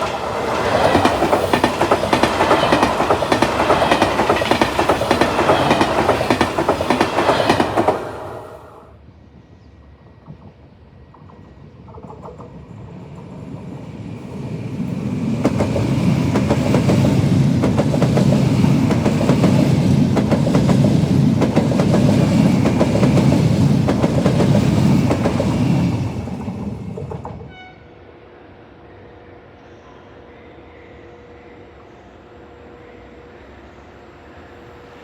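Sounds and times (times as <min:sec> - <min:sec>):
train wheels clattering over rail joints: 0:00.0 - 0:08.6, 0:15.5 - 0:27.4.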